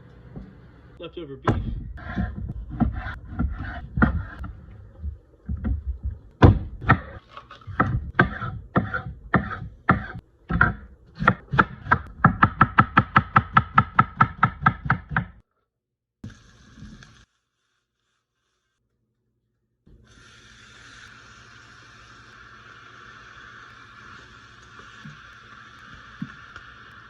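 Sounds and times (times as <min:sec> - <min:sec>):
knife chopping meat: 0:07.8 - 0:15.3.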